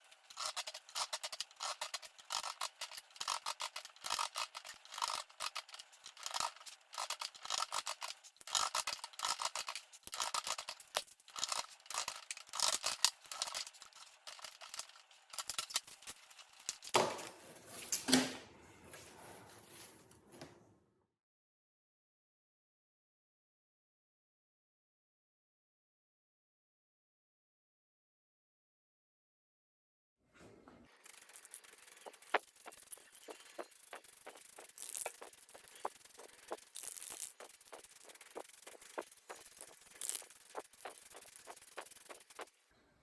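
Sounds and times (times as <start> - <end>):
rapid scraping strokes: 0.0 - 16.6, 30.9 - 42.6
rustling noise: 30.9 - 42.6.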